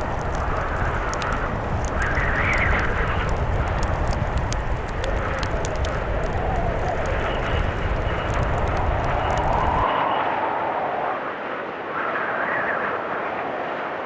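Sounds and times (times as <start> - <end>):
wood fire crackling: 0.0 - 9.8
blizzard wind howling: 0.0 - 14.0.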